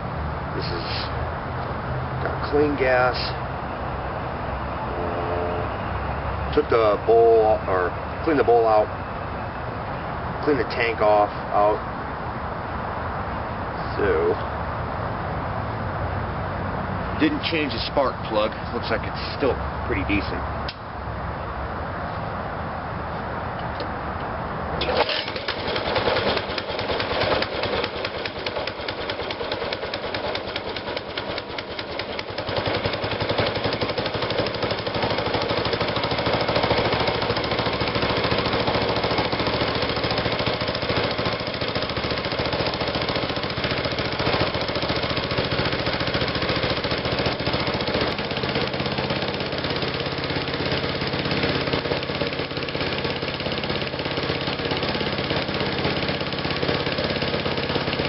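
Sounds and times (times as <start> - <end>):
go-kart engine running: 24.8 - 58.0.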